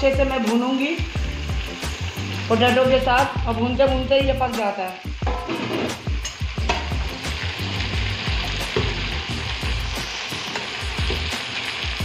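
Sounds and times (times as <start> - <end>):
vegetables sizzling in hot oil: 0.0 - 12.0
steel spoon scraping a pan: 5.3 - 7.0.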